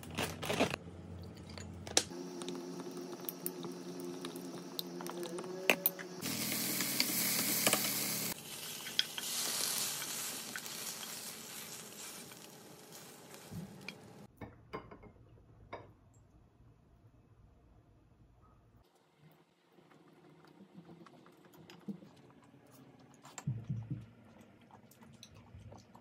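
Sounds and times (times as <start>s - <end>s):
utensil stirring and scraping: 2.4s - 14.3s
food sizzling in a pan: 6.1s - 14.3s.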